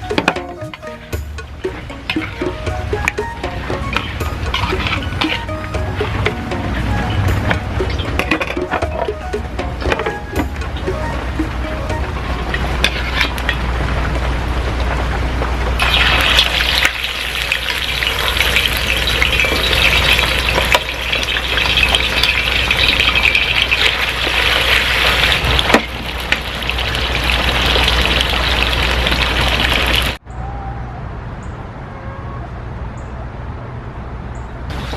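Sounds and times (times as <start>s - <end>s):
food sizzling in a pan: 15.8s - 30.2s.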